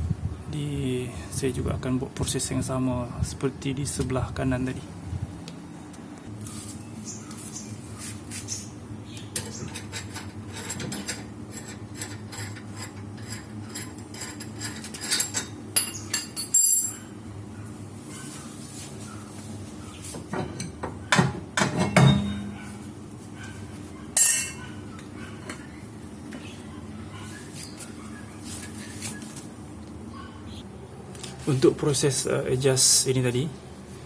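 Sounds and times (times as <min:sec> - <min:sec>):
metal tools clinking on brake parts: 0:09.4 - 0:17.1, 0:24.2 - 0:24.6.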